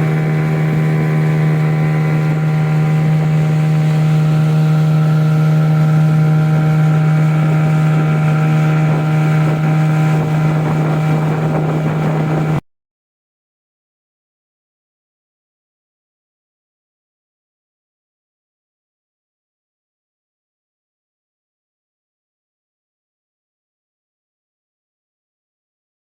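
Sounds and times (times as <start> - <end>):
outboard motor running: 0.0 - 12.6.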